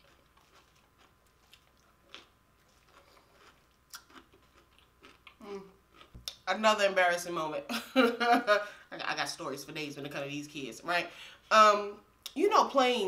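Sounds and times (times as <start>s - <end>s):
person chewing: 0.0s - 6.4s.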